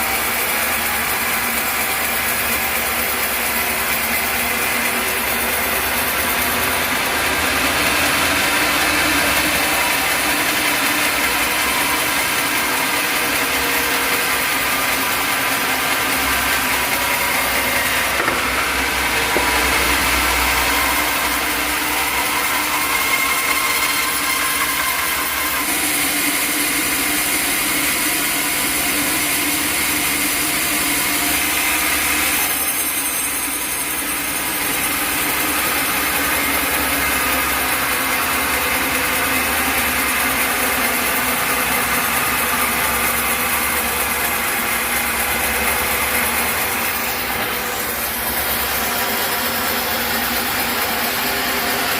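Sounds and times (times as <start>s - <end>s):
sawmill saw droning: 0.0s - 51.9s.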